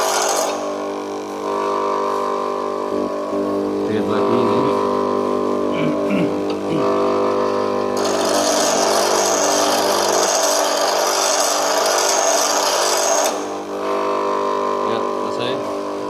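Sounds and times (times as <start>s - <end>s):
tool bit grinding hiss: 0.0s - 0.7s, 7.9s - 13.7s
bench grinder humming: 0.0s - 16.0s.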